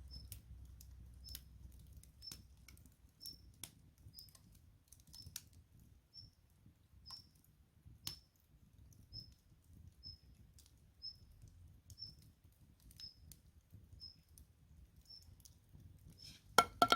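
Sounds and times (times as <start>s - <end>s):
fire popping: 0.0s - 9.0s, 11.5s - 16.9s
wood fire crackling: 0.0s - 16.9s.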